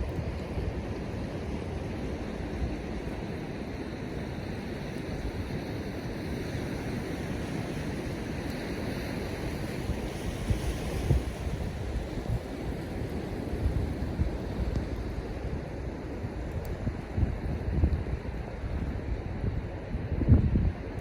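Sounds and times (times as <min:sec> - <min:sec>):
ocean surf washing on beach: 0:00.0 - 0:21.0
wind buffeting microphone: 0:00.0 - 0:21.0.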